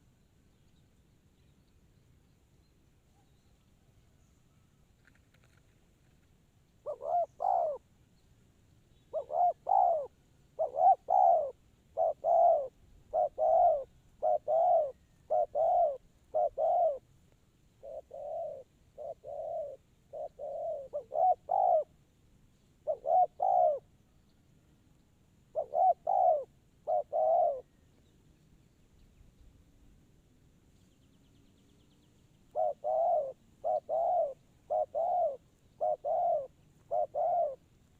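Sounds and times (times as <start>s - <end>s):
dove cooing: 6.8s - 7.8s, 9.1s - 17.0s, 17.8s - 22.0s, 22.8s - 23.9s, 25.5s - 27.8s, 32.5s - 37.6s.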